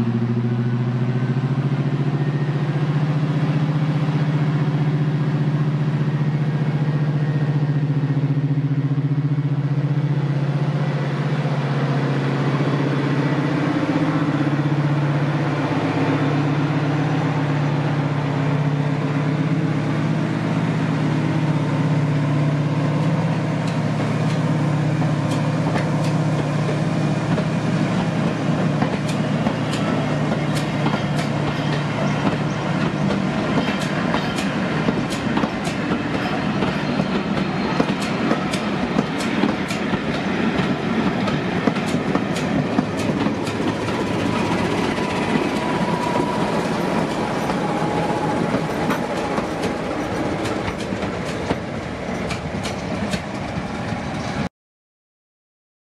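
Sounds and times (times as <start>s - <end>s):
locomotive engine drone: 0.0s - 54.5s
train wheels clicking over rail joints: 23.0s - 54.4s.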